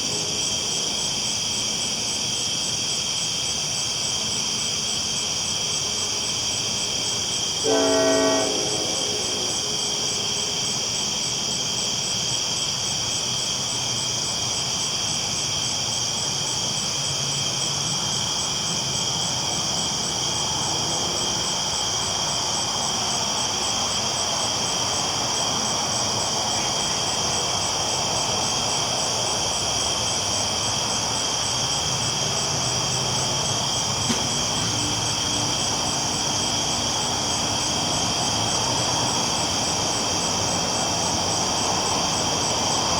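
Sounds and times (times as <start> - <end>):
night insects chorus: 0.0 - 42.9
train rumbling along tracks: 0.0 - 42.9
train horn: 7.5 - 11.2.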